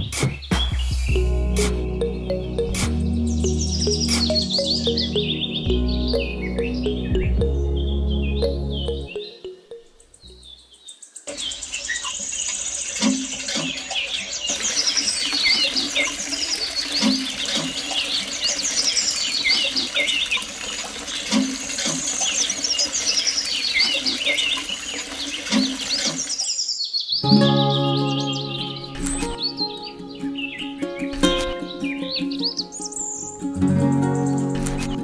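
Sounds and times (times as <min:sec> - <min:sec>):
birds chirping: 0:00.3 - 0:35.0
water trickling into trough: 0:12.1 - 0:26.5.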